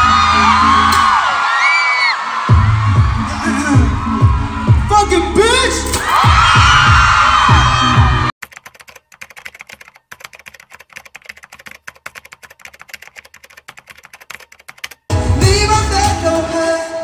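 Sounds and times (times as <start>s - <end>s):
live concert music with singing: 0.0s - 8.3s, 15.1s - 17.0s
keyboard typing clicks: 8.4s - 15.1s.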